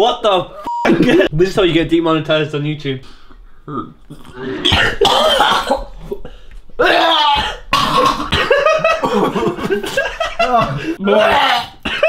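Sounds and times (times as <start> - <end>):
person gagging and coughing: 3.7 - 12.0.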